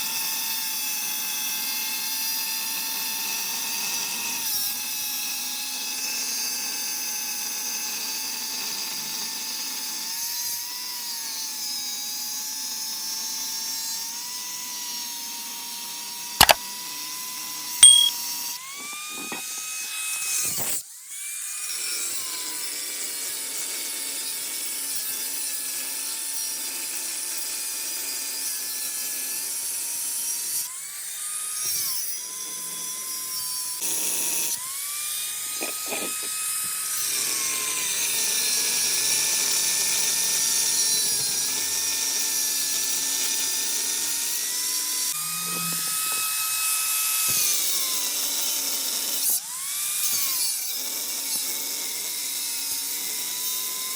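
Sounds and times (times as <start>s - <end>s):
power tool cutting metal: 20.7s - 53.9s.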